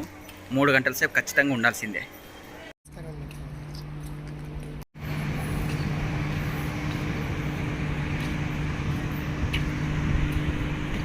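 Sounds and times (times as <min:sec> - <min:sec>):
train running hum and rumble: 0:04.4 - 0:11.0.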